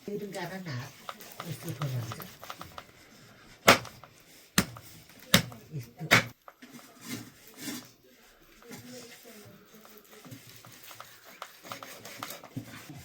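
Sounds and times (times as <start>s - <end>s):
faint handling sounds: 0.0s - 13.0s
sharp knocks: 3.7s - 4.0s, 4.6s - 4.8s, 5.4s - 6.3s.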